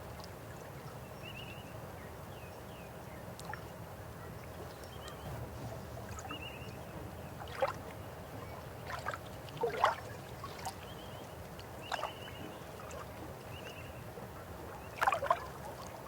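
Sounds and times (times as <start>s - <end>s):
river water flowing: 3.3s - 16.0s
water gurgles and splashes: 7.2s - 13.9s, 14.6s - 16.0s.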